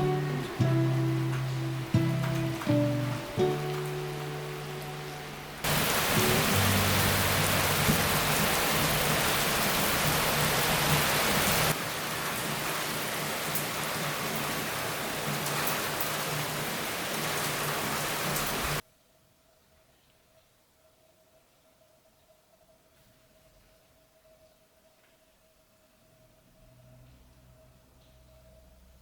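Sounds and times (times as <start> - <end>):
soft acoustic guitar music: 0.0 - 8.4
steady rain falling: 0.0 - 18.8.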